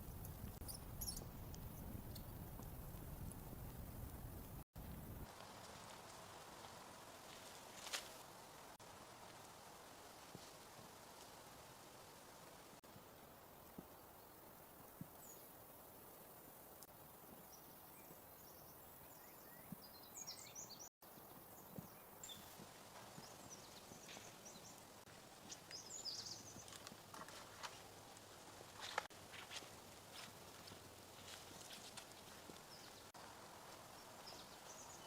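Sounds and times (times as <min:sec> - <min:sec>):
faint steady hiss: 0:00.0 - 0:35.0
faint clicks and crunches: 0:26.5 - 0:33.1.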